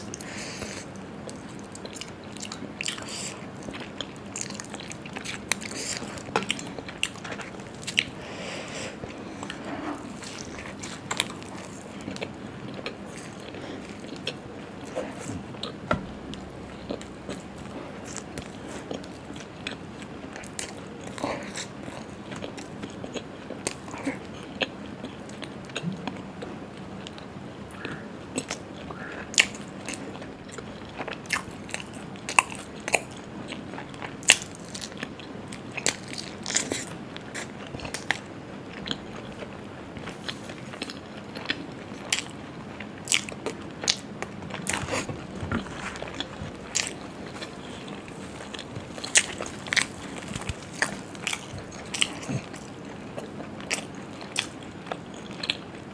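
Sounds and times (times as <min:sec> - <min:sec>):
person chewing and biting: 0:00.1 - 0:25.9, 0:40.1 - 0:55.7.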